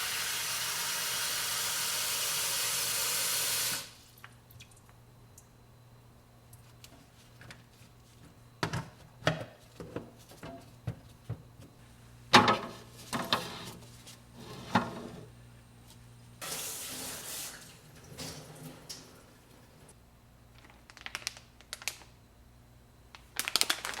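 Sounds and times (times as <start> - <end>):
kitchen knocks and clatters: 8.2 - 13.9.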